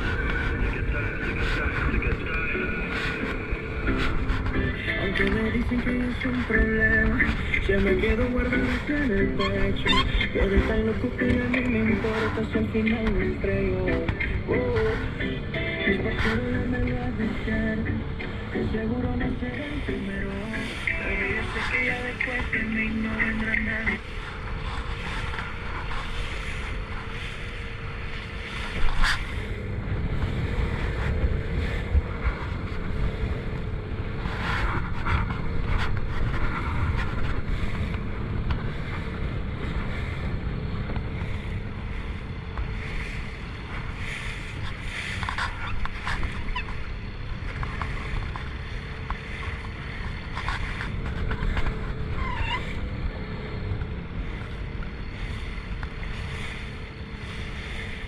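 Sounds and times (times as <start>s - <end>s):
boat engine drone: 0.0s - 58.0s
water rushing along hull: 0.0s - 58.0s
wind buffeting microphone: 0.0s - 58.0s
hull slapping waves: 19.6s - 33.5s, 34.1s - 52.7s, 55.2s - 58.0s.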